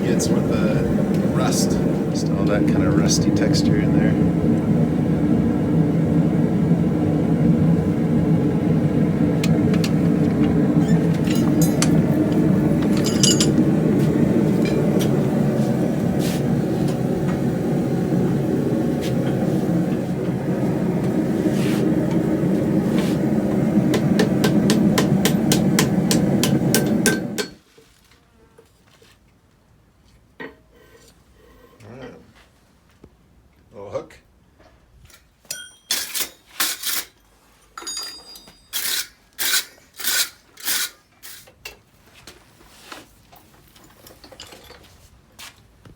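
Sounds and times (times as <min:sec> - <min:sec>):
gas burner roaring: 0:00.0 - 0:27.6.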